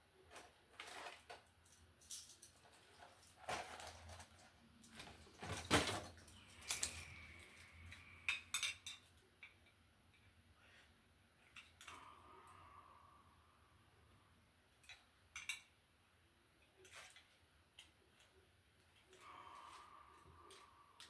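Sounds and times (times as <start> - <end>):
hand tools clicking and rattling: 0.8 - 9.6.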